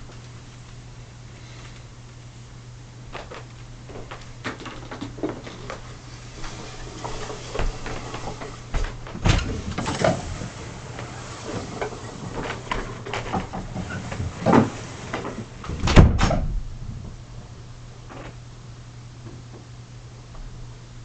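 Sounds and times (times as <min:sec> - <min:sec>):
knocks and clattering of objects: 0:03.1 - 0:05.9.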